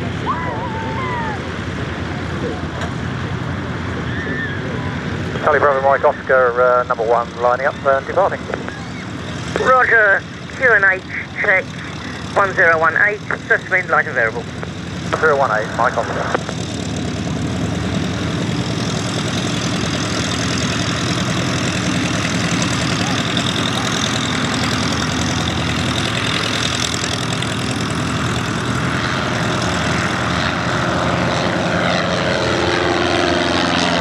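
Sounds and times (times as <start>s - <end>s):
propeller aircraft engine: 0.0s - 34.0s.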